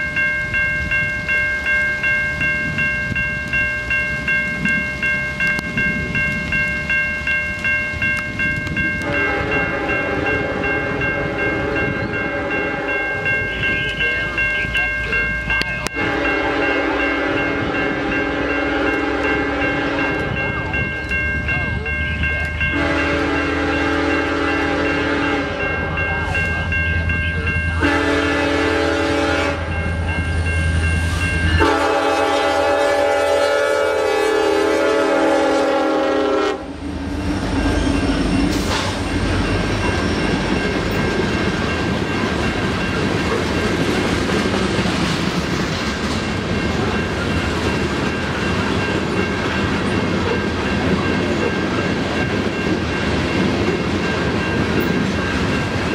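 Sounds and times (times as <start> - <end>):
train cars rumbling past: 0.0 - 55.9
locomotive horn blasts: 9.0 - 14.2, 15.8 - 20.4, 22.7 - 26.0, 27.8 - 29.8, 31.5 - 36.8.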